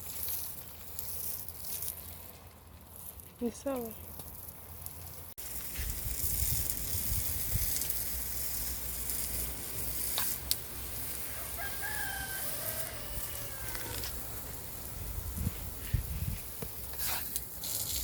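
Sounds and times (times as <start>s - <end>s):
water spraying from a hose: 0.0s - 18.0s
rooster crowing: 11.2s - 14.2s.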